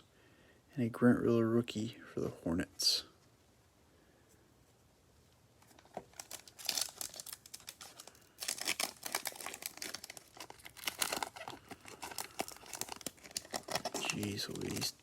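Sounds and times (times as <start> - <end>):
plastic wrapper tearing and crinkling: 5.7 - 15.0.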